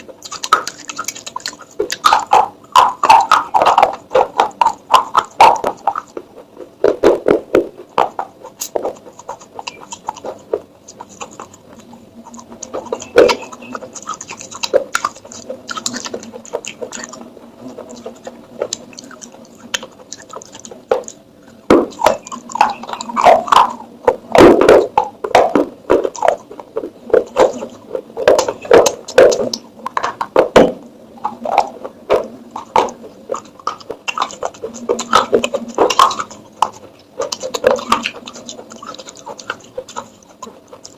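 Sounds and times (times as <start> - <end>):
clay pots tapped and scraped: 0.0 - 19.9.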